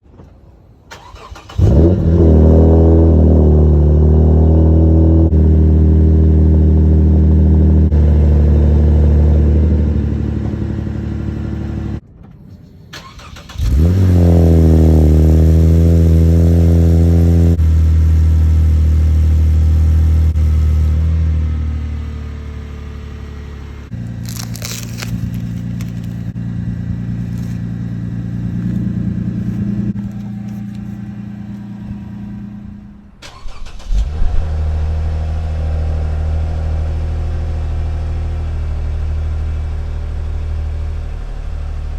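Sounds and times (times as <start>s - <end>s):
car engine cranking: 0.9s - 3.7s, 12.5s - 16.1s, 23.9s - 41.9s
car engine idling: 3.1s - 12.0s, 13.0s - 41.9s.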